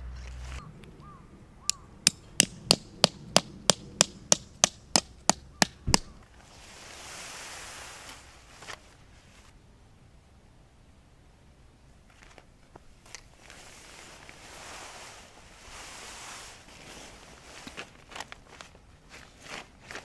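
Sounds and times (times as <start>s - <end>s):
sharp knocks: 2.1s - 6.2s
short soft hiss: 6.4s - 9.5s.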